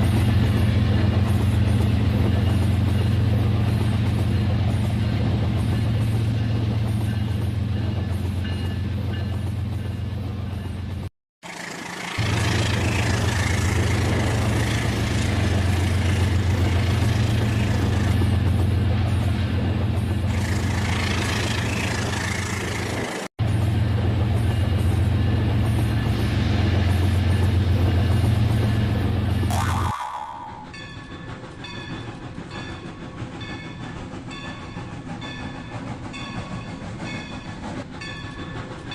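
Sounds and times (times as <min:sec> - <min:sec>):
toy train motor hum: 0:11.4 - 0:14.2
clatter of wheels and gears: 0:11.4 - 0:18.7.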